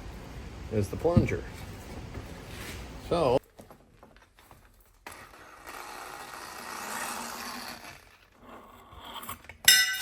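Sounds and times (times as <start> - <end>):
sharp metallic clink: 9.6 - 10.0.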